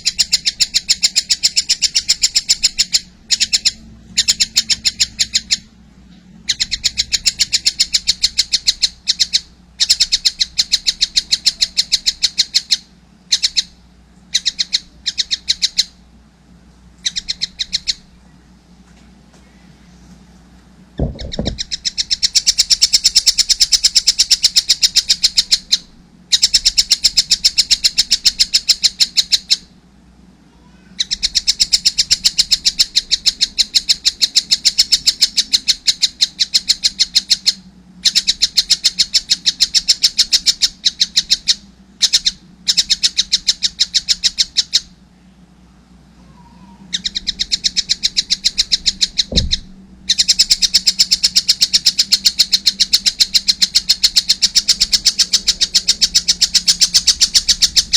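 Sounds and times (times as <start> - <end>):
kingfisher high chirps: 0.0 - 5.7, 6.4 - 16.0, 17.0 - 18.2, 21.0 - 29.7, 30.6 - 45.0, 46.3 - 57.9
low thump: 21.0 - 21.6, 49.3 - 49.7.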